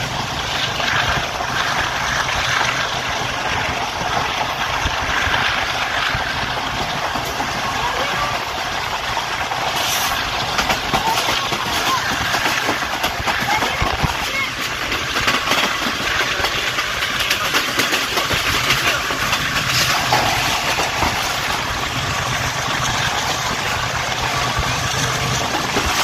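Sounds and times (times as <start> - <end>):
train wheels rushing on rails: 0.0 - 26.0
sharp clicks and knocks: 9.7 - 26.0.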